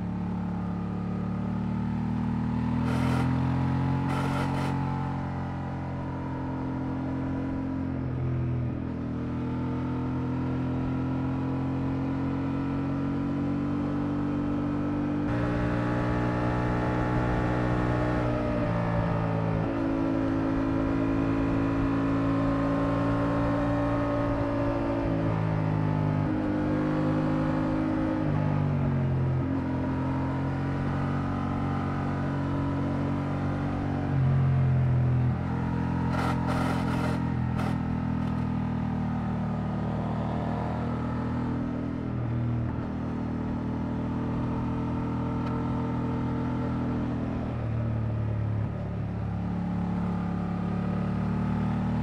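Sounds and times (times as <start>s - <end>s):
motorcycle engine revving: 1.7s - 5.2s, 15.3s - 28.2s, 35.1s - 41.6s.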